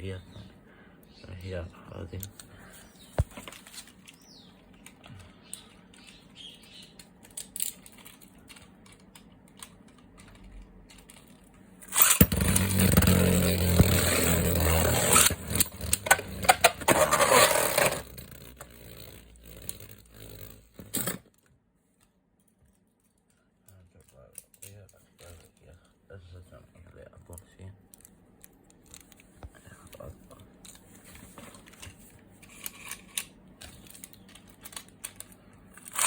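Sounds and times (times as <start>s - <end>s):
spinning top scraping and clacks: 11.8s - 21.2s, 31.4s - 36.0s
spinning top whirring: 11.9s - 21.2s.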